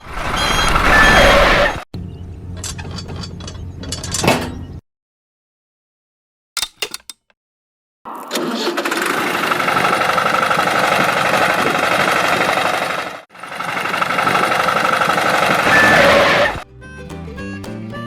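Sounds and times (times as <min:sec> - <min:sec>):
small tractor motor running: 0:08.1 - 0:16.6.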